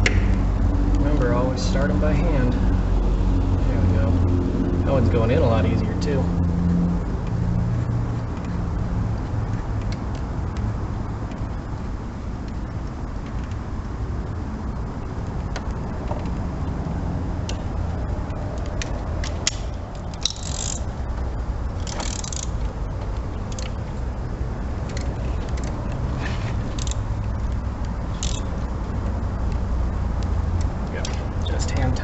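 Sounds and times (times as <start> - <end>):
low background rumble: 0.0 - 32.0
metal hand tools clicking and scraping: 19.2 - 20.9, 21.8 - 22.6, 24.9 - 27.1, 28.1 - 28.5.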